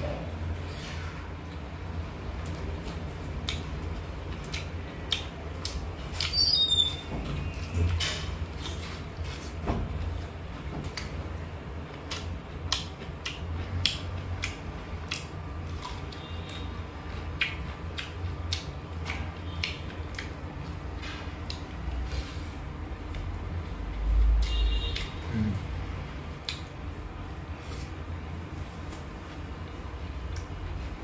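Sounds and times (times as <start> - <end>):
chewing and wet mouth smacking: 2.4 - 6.4, 11.9 - 20.8, 26.4 - 26.9.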